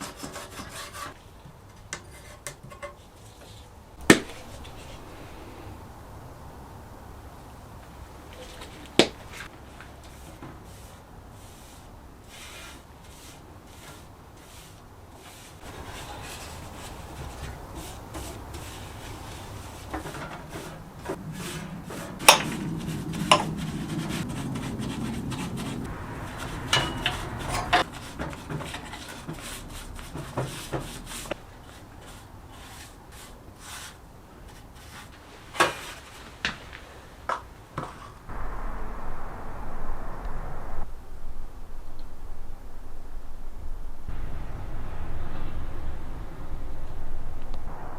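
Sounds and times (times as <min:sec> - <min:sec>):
rubbing and scraping: 0:00.0 - 0:01.2, 0:08.4 - 0:36.4.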